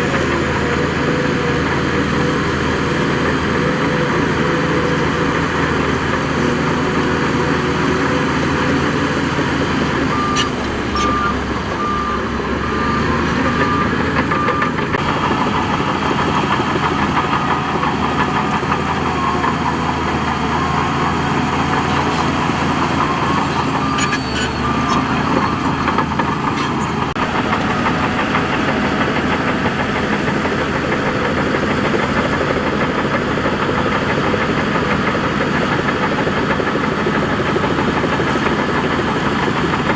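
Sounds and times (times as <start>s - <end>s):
heavy diesel machinery running: 0.0s - 39.9s
reversing alarm beeping: 10.0s - 14.8s, 20.5s - 27.1s.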